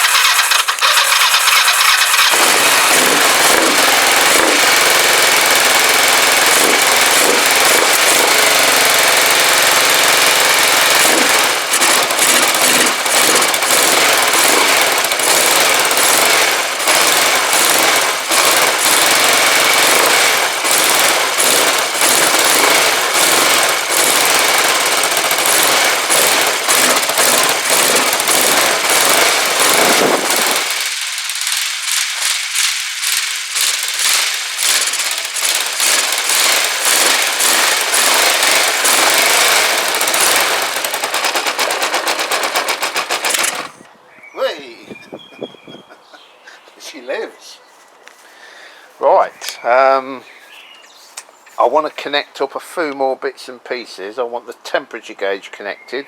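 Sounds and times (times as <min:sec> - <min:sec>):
motorcycle engine cranking and running: 0:00.0 - 0:43.9.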